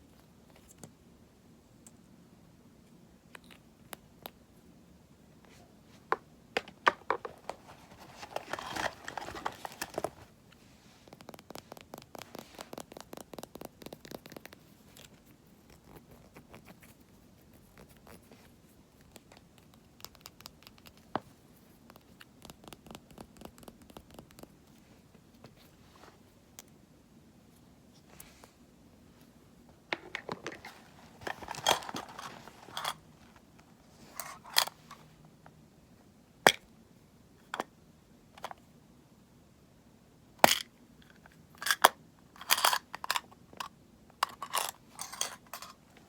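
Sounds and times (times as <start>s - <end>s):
scratching on containers: 5.5s - 26.3s, 29.8s - 35.1s, 41.6s - 46.0s
containers clicking and tapping: 6.1s - 7.6s, 29.9s - 33.0s.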